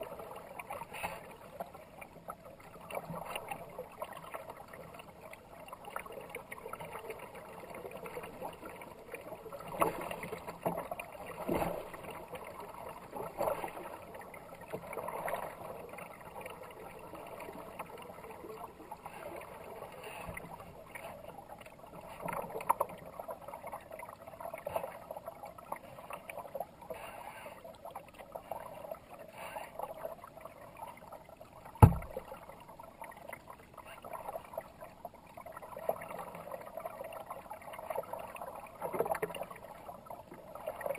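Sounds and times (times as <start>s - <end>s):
sharp knock: 31.8s - 32.1s
kayak paddle splashing: 31.8s - 32.3s
water rushing along boat: 31.8s - 32.3s.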